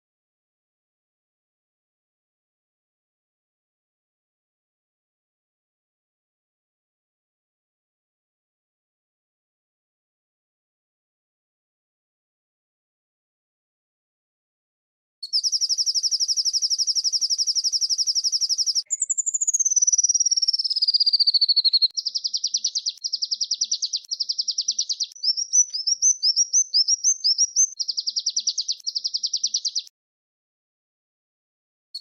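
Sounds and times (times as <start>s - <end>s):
songbird trilling: 15.2s - 29.9s.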